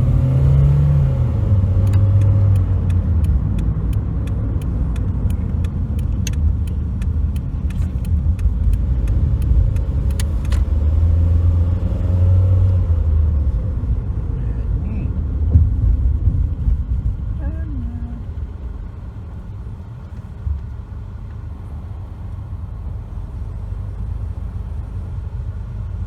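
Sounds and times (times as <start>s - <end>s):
road and engine rumble: 0.0s - 26.0s
light ticks: 1.8s - 10.8s.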